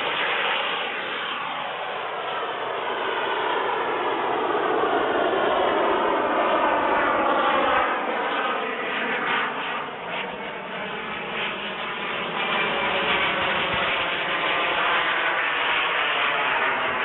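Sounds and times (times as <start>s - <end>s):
model jet turbine roaring: 0.0s - 17.0s.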